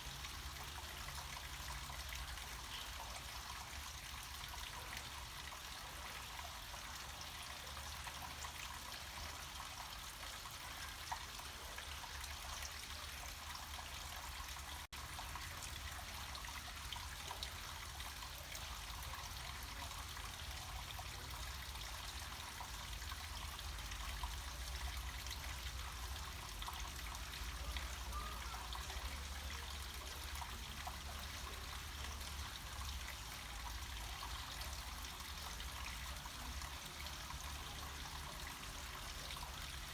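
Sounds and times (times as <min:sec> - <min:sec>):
stream water trickling and splashing: 0:00.0 - 0:39.9.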